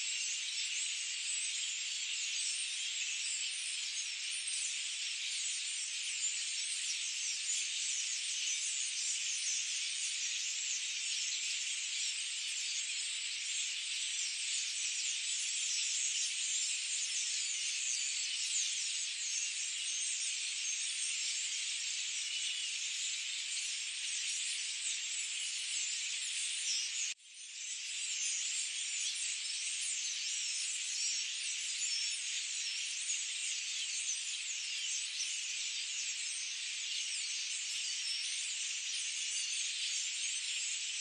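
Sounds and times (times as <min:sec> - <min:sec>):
forest birds chirping: 0:00.0 - 0:41.0.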